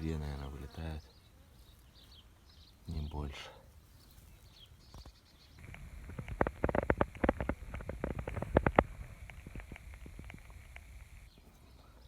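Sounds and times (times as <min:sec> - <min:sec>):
faint high whine: 0:05.6 - 0:11.3.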